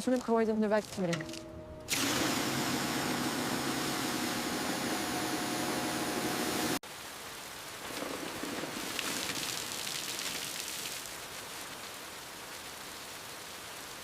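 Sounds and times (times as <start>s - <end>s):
rain-like patter: 6.8s - 14.0s.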